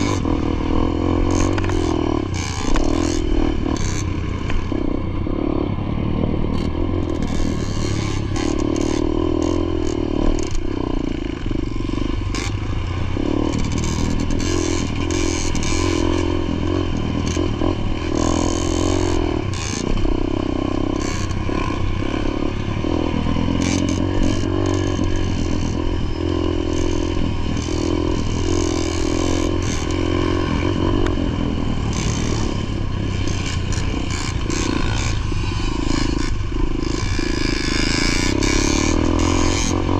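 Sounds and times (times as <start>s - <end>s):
dirt bike engine running hard: 0.0s - 39.9s.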